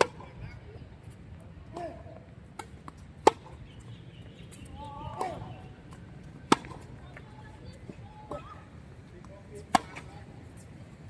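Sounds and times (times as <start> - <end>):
tennis ball hits: 2.6 - 3.6, 5.1 - 7.0, 9.2 - 10.2.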